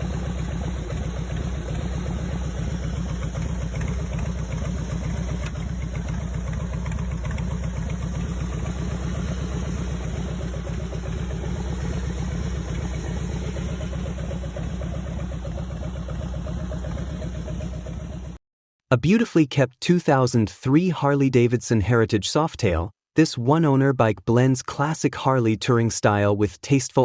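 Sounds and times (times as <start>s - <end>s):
motorcycle engine idling: 0.0s - 18.4s.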